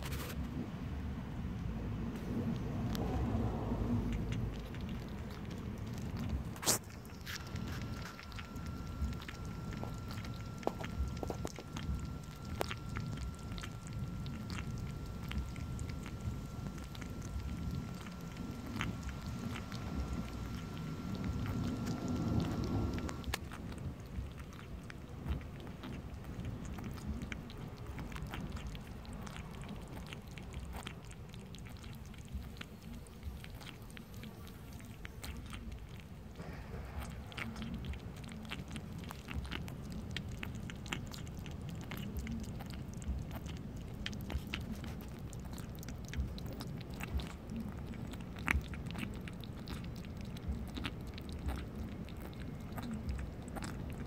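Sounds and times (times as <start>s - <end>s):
steady low rumble: 0.0s - 54.0s
cat chewing: 2.2s - 54.0s.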